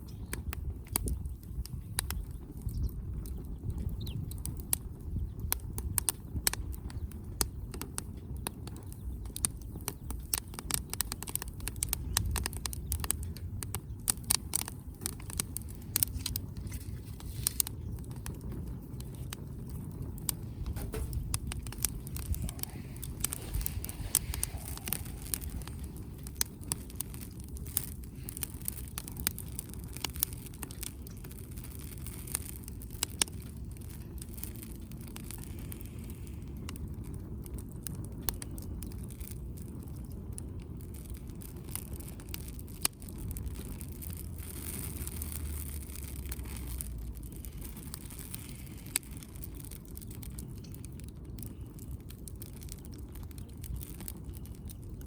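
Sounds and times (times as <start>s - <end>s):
wood fire crackling and popping: 0.0s - 55.0s
low rumble: 15.0s - 37.3s.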